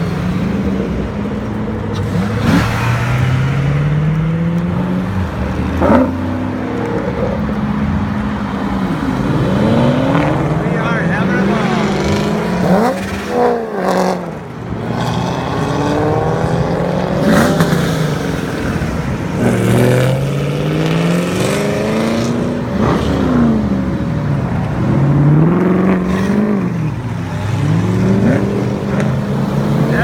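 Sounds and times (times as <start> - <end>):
car engine pulling hard: 0.0 - 30.0.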